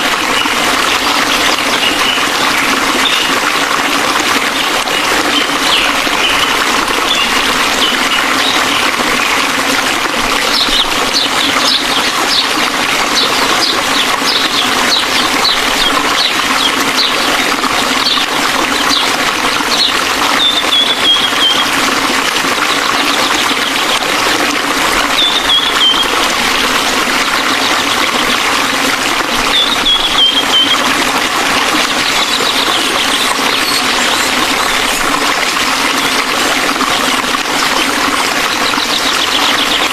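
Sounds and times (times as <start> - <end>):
waterfall rushing: 0.0 - 39.9
bird chirps and trills: 0.3 - 3.3, 4.9 - 9.4, 10.4 - 21.8, 25.0 - 26.3, 29.4 - 30.9, 31.8 - 35.1, 37.8 - 39.9.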